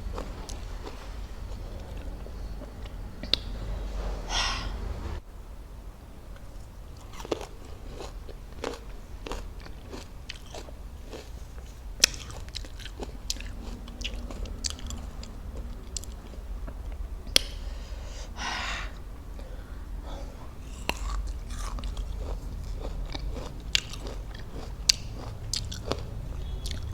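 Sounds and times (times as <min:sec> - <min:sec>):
raw fruit crunching chewed: 0:00.0 - 0:04.0, 0:06.4 - 0:17.8, 0:20.5 - 0:26.9
breath drawn: 0:03.6 - 0:05.2.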